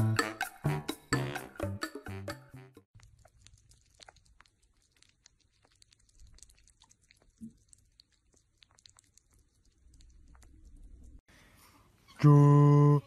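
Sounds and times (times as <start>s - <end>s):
animals licking wet clicks: 3.0s - 11.2s.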